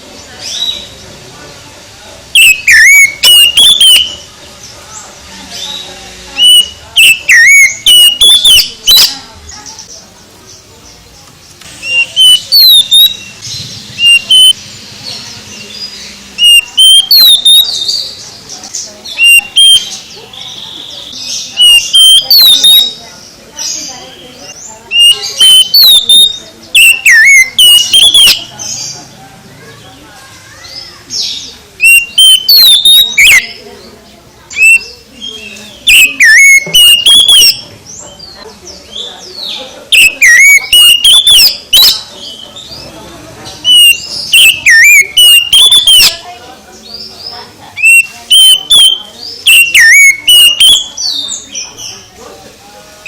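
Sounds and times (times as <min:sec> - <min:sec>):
bird whistling song: 0:02.3 - 0:04.4, 0:05.6 - 0:09.3, 0:11.8 - 0:18.2, 0:19.0 - 0:28.8, 0:30.6 - 0:33.8, 0:34.5 - 0:37.7, 0:39.4 - 0:42.7, 0:43.6 - 0:46.3, 0:47.8 - 0:52.0
bird twittering: 0:02.3 - 0:04.7, 0:05.5 - 0:10.6, 0:11.8 - 0:29.1, 0:30.5 - 0:33.9, 0:34.5 - 0:42.9, 0:43.6 - 0:52.1.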